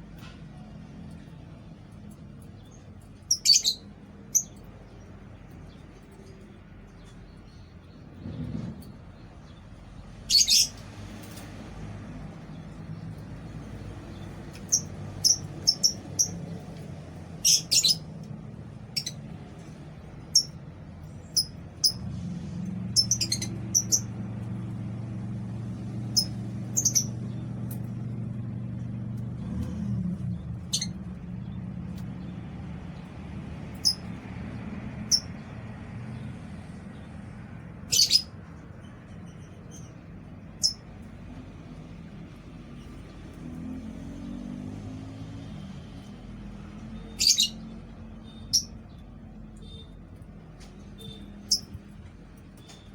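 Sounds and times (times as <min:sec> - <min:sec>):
lovebirds chirping: 0:02.4 - 0:11.5, 0:12.5 - 0:18.1, 0:20.2 - 0:22.0, 0:26.1 - 0:28.2, 0:37.8 - 0:41.2, 0:46.3 - 0:50.0.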